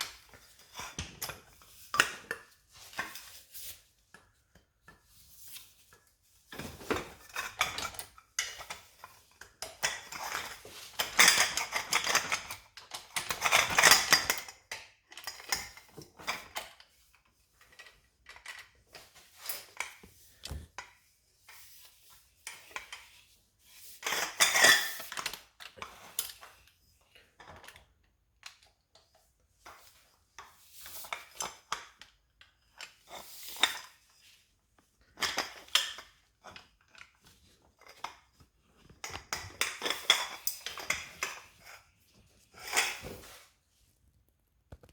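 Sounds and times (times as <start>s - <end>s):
metal tools clinking and scraping: 6.6s - 16.7s, 35.1s - 43.5s.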